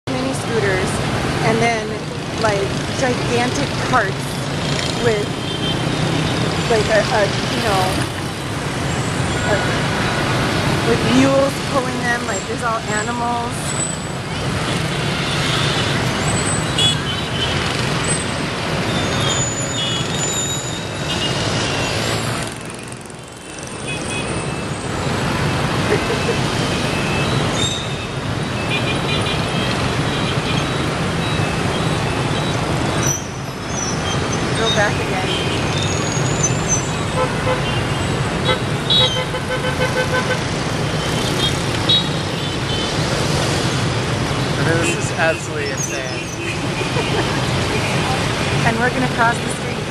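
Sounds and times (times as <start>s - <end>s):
motorbike traffic hum: 0.0s - 49.9s
horns tooting: 33.8s - 43.0s, 44.4s - 49.9s.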